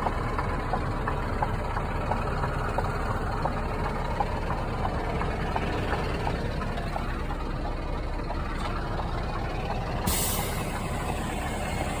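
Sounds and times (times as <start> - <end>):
diesel truck engine idling: 0.0 - 12.0
hiss of released air: 10.1 - 12.0.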